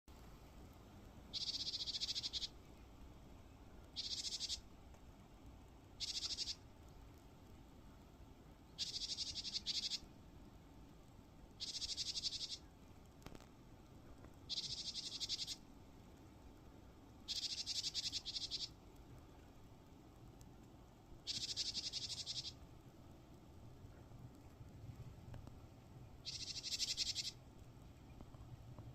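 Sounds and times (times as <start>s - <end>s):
bird high pulsed trill: 1.3s - 2.5s, 4.0s - 4.6s, 6.0s - 6.6s, 8.8s - 10.0s, 11.6s - 12.6s, 14.5s - 15.6s, 21.3s - 22.6s, 26.2s - 27.4s.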